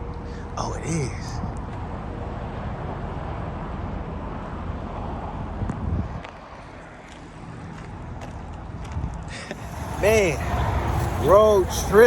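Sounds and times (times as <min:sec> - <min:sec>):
vehicle road and engine rumble: 0:00.0 - 0:12.0
wind on microphone: 0:05.4 - 0:06.3.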